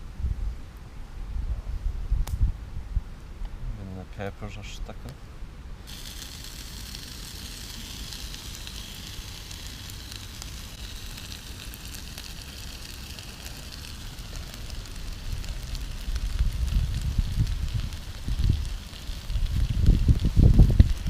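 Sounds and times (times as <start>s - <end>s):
crackles and pops of fire: 2.1s - 2.5s, 5.8s - 21.0s
kebabs sizzling in a pan: 5.9s - 21.0s.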